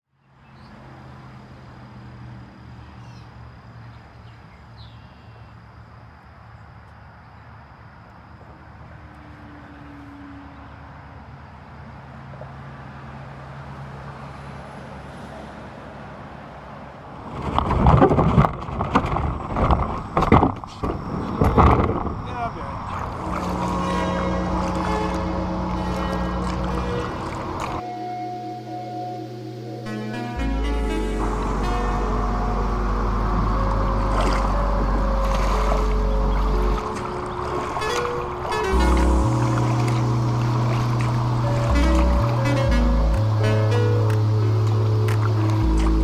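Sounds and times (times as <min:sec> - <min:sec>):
low vehicle engine hum: 0:18.6 - 0:46.0
loud irregular noise bursts: 0:20.9 - 0:46.0.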